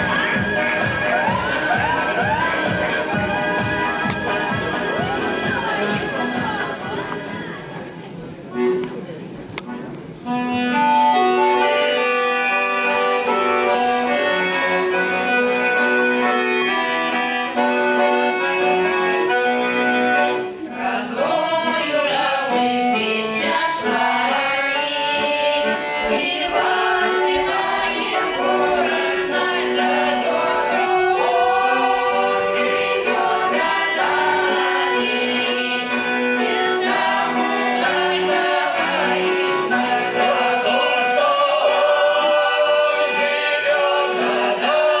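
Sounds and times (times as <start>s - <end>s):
vocal ensemble singing folk song: 0.0s - 7.8s, 20.1s - 45.0s
accordion chords: 0.0s - 45.0s.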